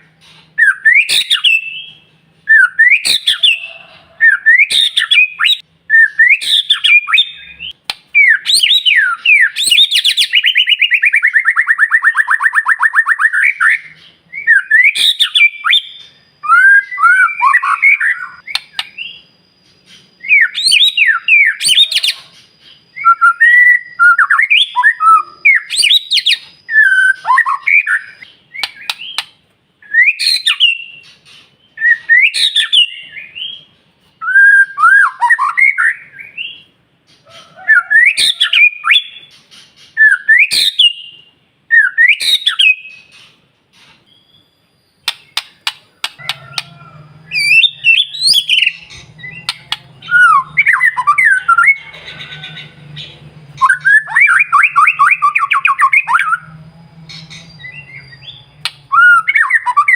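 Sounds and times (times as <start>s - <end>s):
bird singing whistled phrases: 0.6s - 31.1s, 31.7s - 36.7s, 37.7s - 43.2s, 44.1s - 52.6s, 53.5s - 56.5s, 57.1s - 59.9s
sharp clicks: 45.0s - 46.7s, 58.6s - 58.9s.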